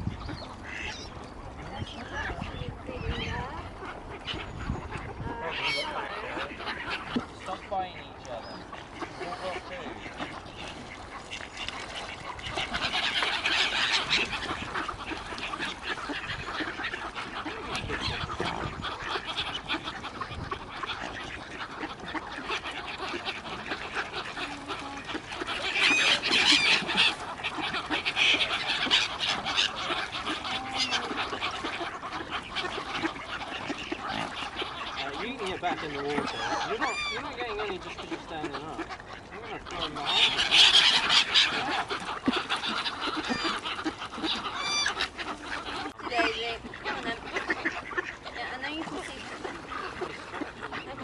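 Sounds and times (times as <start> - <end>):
waterbirds calling: 0.0 - 51.0.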